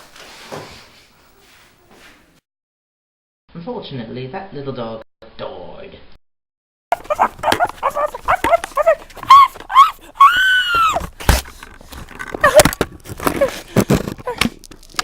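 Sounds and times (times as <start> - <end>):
small dog whimpering and yipping: 7.0 - 11.0.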